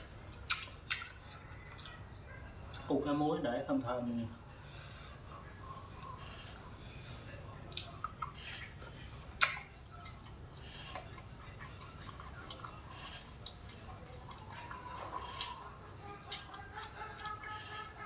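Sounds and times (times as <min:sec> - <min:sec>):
person chewing: 0:00.0 - 0:02.0, 0:07.7 - 0:18.0
mouth clicks and smacks: 0:00.3 - 0:02.9, 0:07.7 - 0:17.6.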